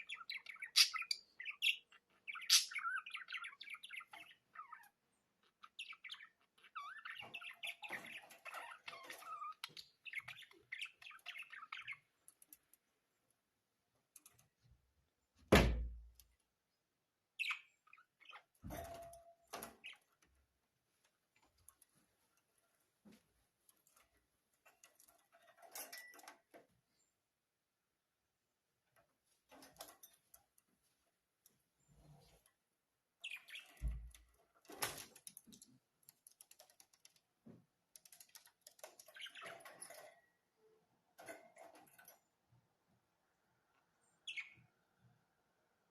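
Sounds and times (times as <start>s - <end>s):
budgerigars chirping: 0.0s - 5.0s.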